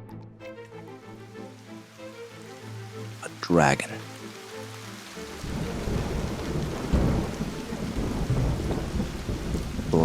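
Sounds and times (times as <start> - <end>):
steady rain: 0.6 - 10.0
thunder rumbling: 5.4 - 10.0.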